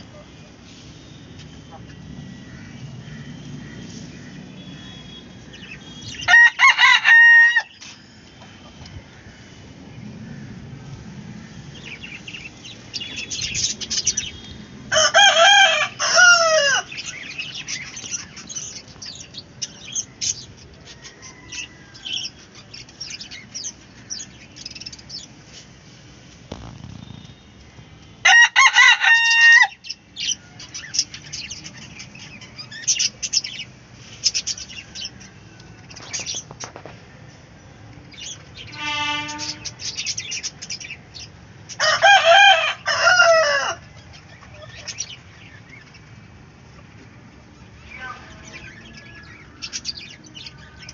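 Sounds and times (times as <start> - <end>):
chickens clucking and cheeping: 0.0 - 50.9
rooster crowing: 6.2 - 7.8, 14.9 - 17.0, 20.9 - 22.4, 28.2 - 29.9, 41.7 - 43.9.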